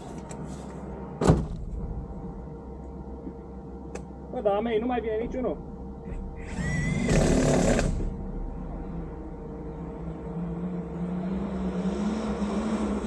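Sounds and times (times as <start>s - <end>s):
engine idling: 4.4s - 11.4s.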